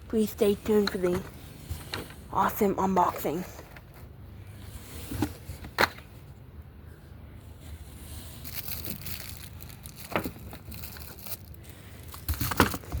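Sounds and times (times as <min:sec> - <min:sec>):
rustling and crinkling: 0:07.4 - 0:13.0.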